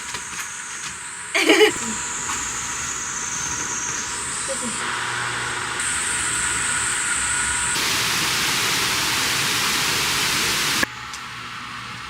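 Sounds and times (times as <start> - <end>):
rain hissing: 0.0 - 11.1.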